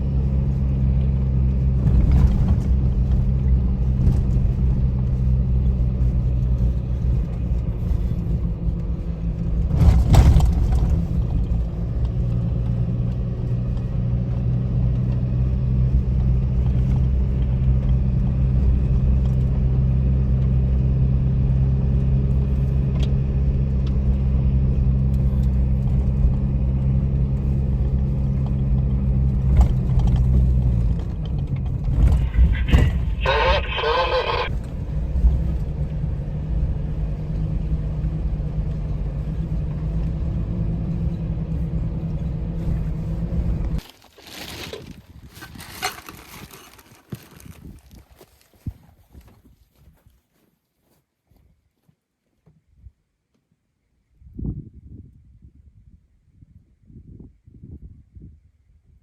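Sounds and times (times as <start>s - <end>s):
car engine running: 0.0s - 43.8s.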